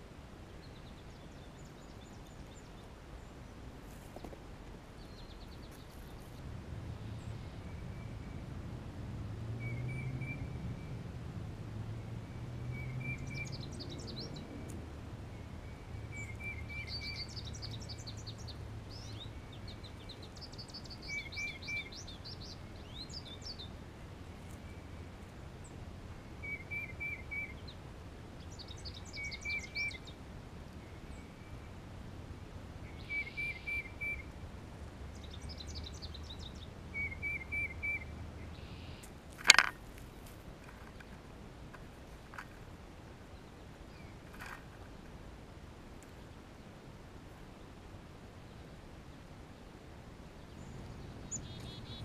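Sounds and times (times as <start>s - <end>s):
bird song phrase: 12.7s - 14.7s, 15.4s - 23.8s, 26.4s - 27.8s, 28.4s - 30.2s, 32.9s - 34.3s, 35.1s - 39.1s, 50.4s - 52.0s.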